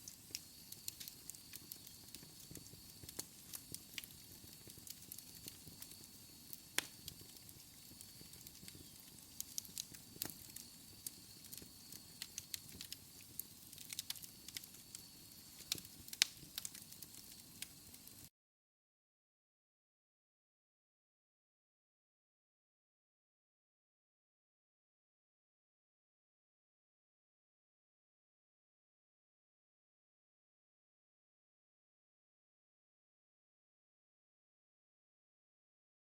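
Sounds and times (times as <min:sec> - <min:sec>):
wood fire crackling: 0:00.0 - 0:18.3.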